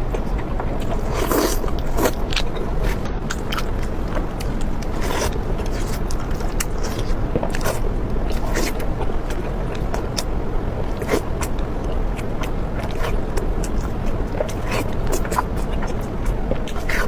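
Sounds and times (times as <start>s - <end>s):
crunchy food being chewed: 0.0s - 17.0s.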